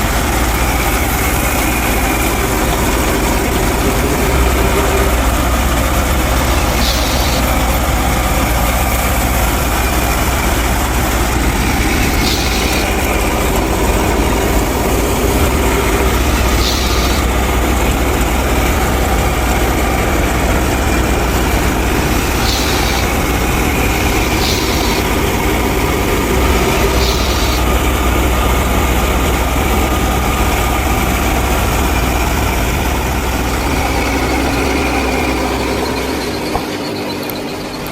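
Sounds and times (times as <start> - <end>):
engine humming: 0.0 - 37.9
short hissing bursts: 0.6 - 20.0, 21.6 - 28.2.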